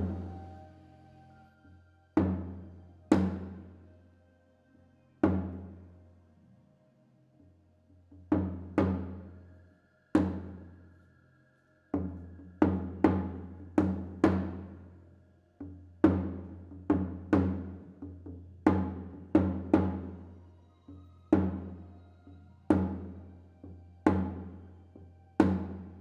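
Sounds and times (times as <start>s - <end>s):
faint held tone: 0.0s - 3.0s.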